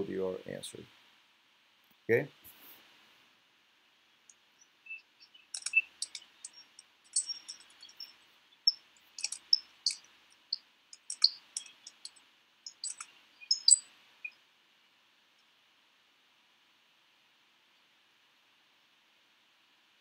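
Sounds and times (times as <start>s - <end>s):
bird chirping: 4.3s - 14.4s.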